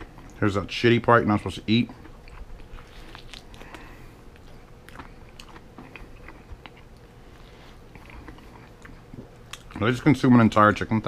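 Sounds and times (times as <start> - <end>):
person chewing crunchy fried chicken: 1.4 - 9.9.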